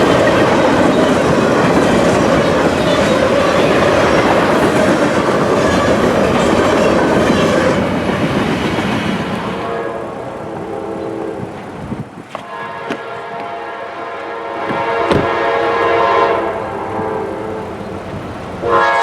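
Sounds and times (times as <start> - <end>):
train wheels clattering over rail joints: 0.0 - 9.6, 14.6 - 15.5.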